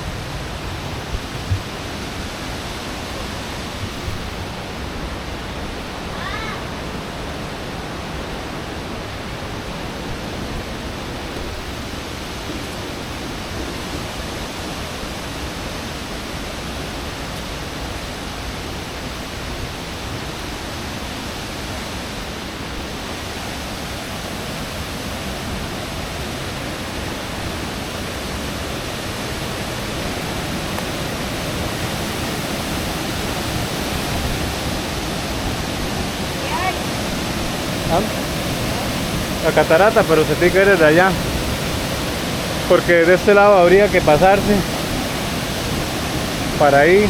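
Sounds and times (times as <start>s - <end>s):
rushing waterfall and river: 0.0s - 47.0s.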